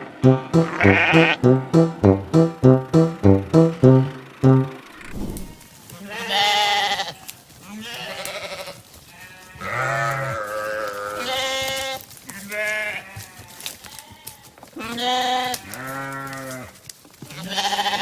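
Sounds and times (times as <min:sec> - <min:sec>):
sheep bleating: 0:06.0 - 0:16.7, 0:17.3 - 0:18.0.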